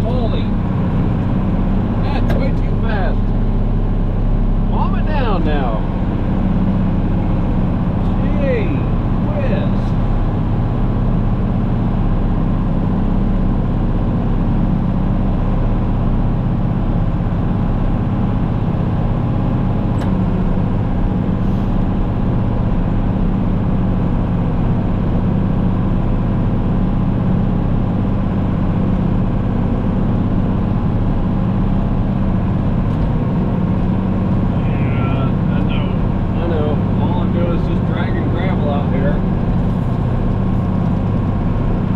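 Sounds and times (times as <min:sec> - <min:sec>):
engine humming steadily: 0:00.0 - 0:41.9.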